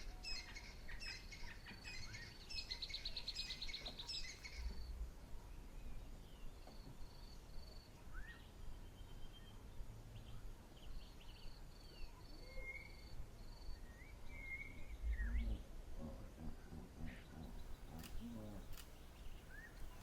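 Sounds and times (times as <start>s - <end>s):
birds calling: 0.0s - 4.9s, 14.4s - 20.0s.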